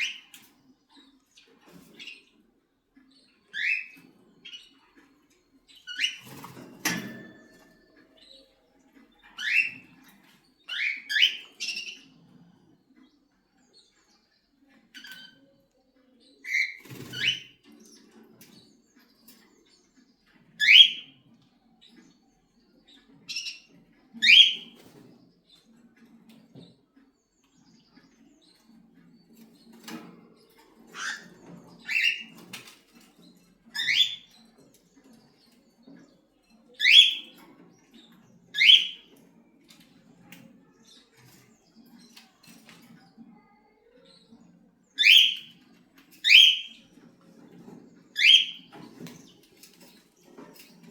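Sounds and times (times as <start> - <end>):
cockatiel chirping: 20.6 - 21.1, 24.2 - 24.8, 36.8 - 37.3, 38.6 - 39.1, 45.0 - 45.5, 46.2 - 46.8, 48.2 - 48.7.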